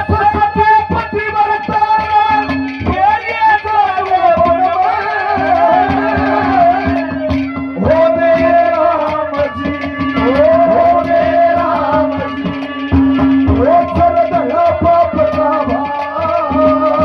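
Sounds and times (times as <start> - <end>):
hand drum rhythm: 0.0 - 17.0
ornamented melody line: 0.0 - 17.0
held drone note: 5.1 - 8.8.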